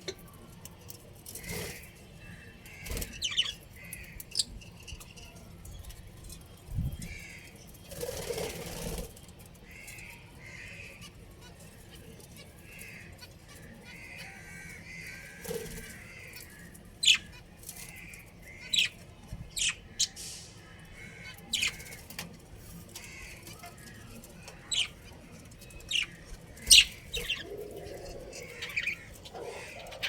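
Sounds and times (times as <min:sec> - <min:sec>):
budgerigars chattering: 0:02.7 - 0:04.6, 0:14.0 - 0:20.4, 0:21.0 - 0:22.1, 0:24.4 - 0:30.0.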